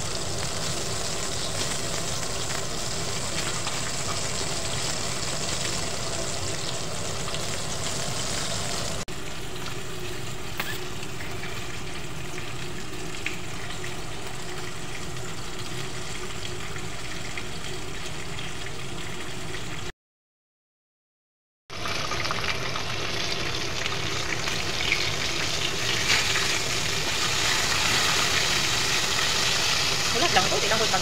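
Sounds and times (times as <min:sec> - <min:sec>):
chicken frying in hot oil: 0:00.0 - 0:19.9, 0:21.7 - 0:31.0.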